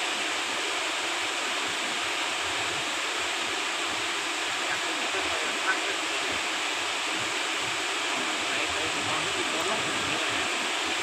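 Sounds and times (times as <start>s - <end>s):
waterfall roar: 0.0s - 11.0s.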